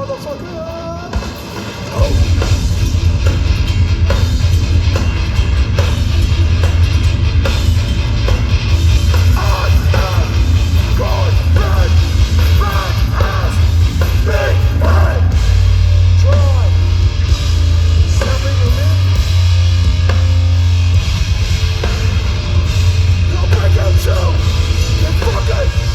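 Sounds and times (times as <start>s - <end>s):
vocals over band: 0.0s - 4.7s, 8.8s - 20.4s, 21.8s - 25.9s
hardcore band playing live: 0.0s - 25.9s.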